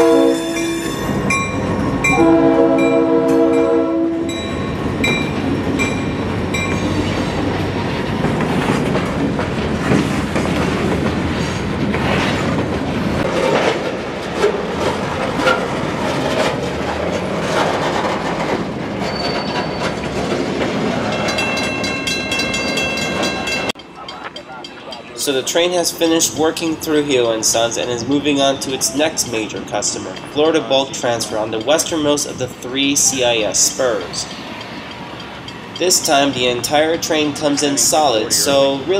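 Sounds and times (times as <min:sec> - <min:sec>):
crossing bell ringing: 0:00.0 - 0:07.4, 0:21.0 - 0:38.9
train wheels clattering over rail joints: 0:04.8 - 0:23.7.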